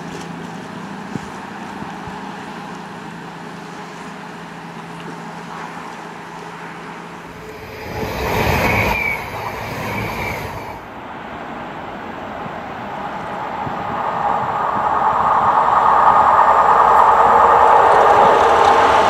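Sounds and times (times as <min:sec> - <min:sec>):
wheel and engine rush: 0:00.0 - 0:19.0
train passing: 0:06.1 - 0:19.0
high-pitched wheel squeals: 0:07.2 - 0:10.9, 0:12.8 - 0:19.0.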